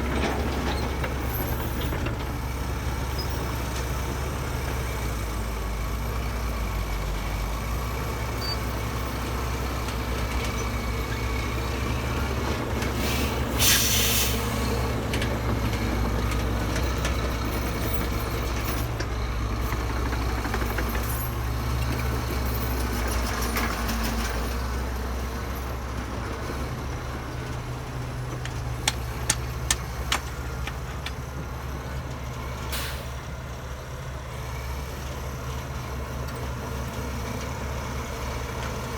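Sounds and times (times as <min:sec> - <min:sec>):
diesel earthmoving machinery drone: 0:00.0 - 0:38.9
short sharp hiss: 0:13.1 - 0:14.5
sharp knocks: 0:28.4 - 0:31.2.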